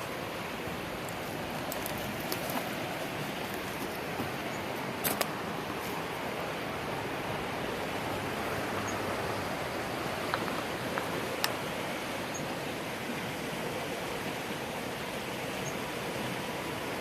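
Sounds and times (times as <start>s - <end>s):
creek rushing: 0.0s - 17.0s.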